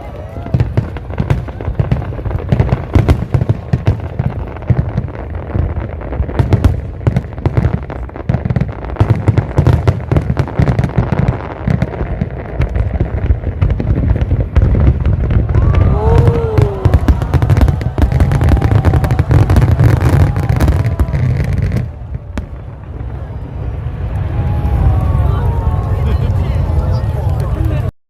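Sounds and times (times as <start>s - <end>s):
fireworks bangs and booms: 0.0s - 27.9s
deep rumble: 12.0s - 27.9s.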